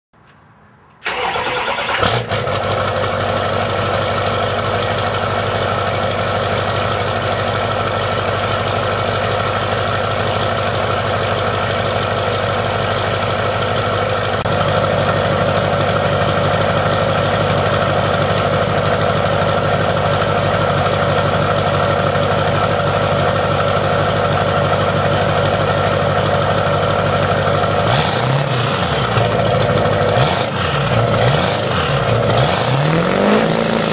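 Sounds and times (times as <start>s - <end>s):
diesel engine cranking: 1.0s - 3.1s, 25.8s - 33.9s
diesel engine idling: 1.0s - 33.9s.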